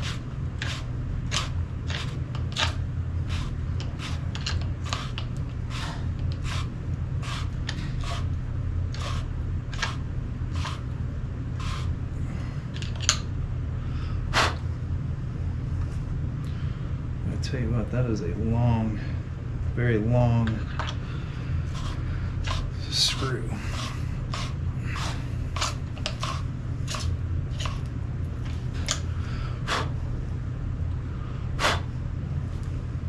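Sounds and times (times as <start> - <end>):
screw turning with scraping clicks: 0.6 - 5.3.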